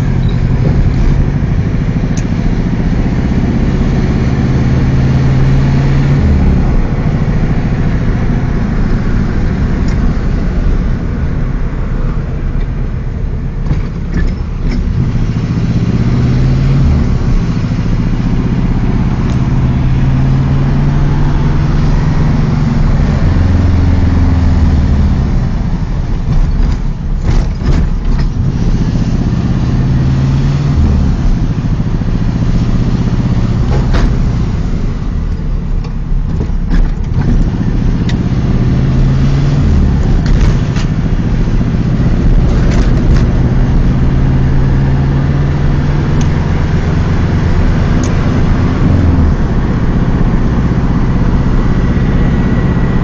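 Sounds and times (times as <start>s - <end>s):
car engine pulling while driving: 0.0s - 53.0s
short knocks or rattles: 26.3s - 28.4s.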